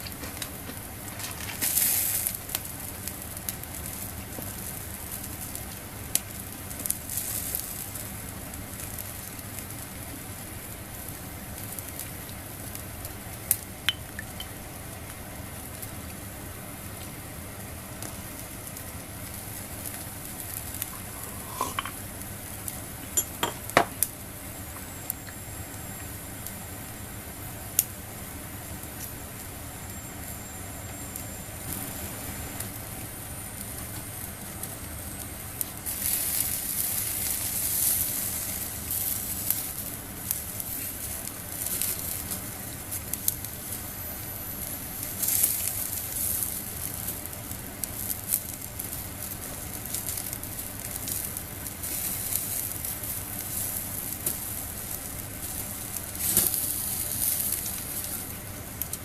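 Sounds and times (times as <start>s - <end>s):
food sizzling on a grill: 0.0s - 59.0s
utensils clinking on metal: 20.9s - 22.0s, 23.2s - 23.9s.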